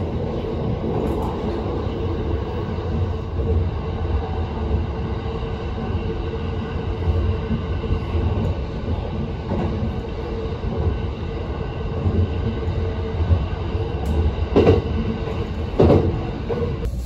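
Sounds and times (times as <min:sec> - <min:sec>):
train rumbling at speed: 0:00.0 - 0:17.0.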